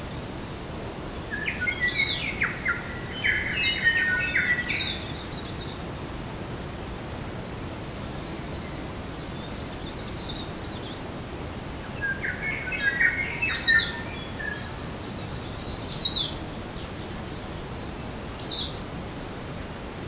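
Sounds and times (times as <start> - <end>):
steady background hiss: 0.0 - 20.0
birds chirping: 12.0 - 17.4.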